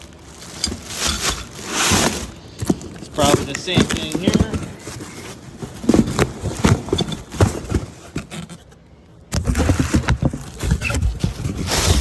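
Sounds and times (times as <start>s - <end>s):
packaging scraping and rustling: 0.0s - 12.0s
busy clattering: 0.4s - 8.3s.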